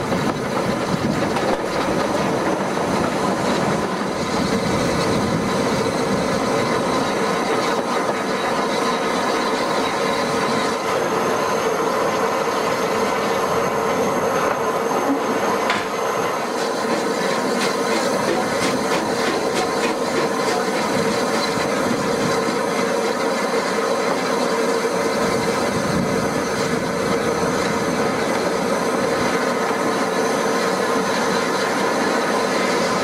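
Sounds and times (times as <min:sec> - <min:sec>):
wheel squeal: 0:00.0 - 0:25.7
train wheels rumbling on rails: 0:00.0 - 0:33.0
clicks over rail joints: 0:01.2 - 0:02.2.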